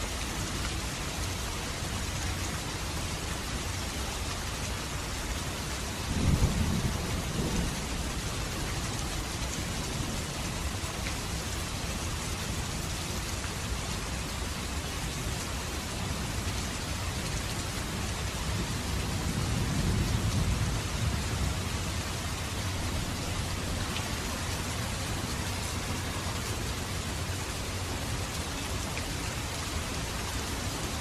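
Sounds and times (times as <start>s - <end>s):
steady rain falling: 0.0s - 31.0s
distant thunder rumble: 6.0s - 8.6s.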